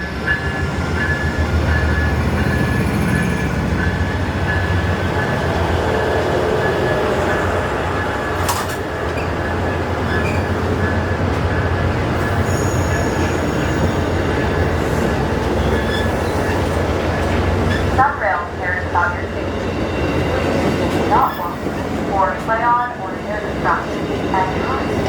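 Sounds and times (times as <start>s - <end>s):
high wheel squeal: 9.2s - 10.7s, 12.2s - 16.7s.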